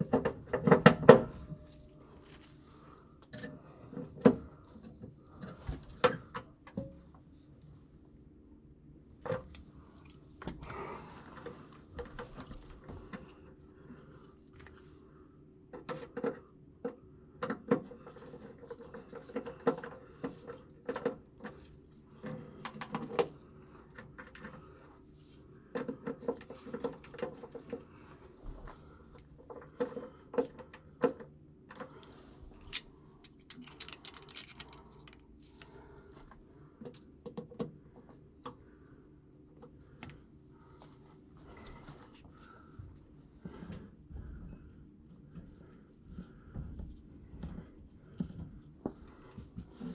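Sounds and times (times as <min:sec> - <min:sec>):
faint steady hum: 0:00.0 - 0:49.9.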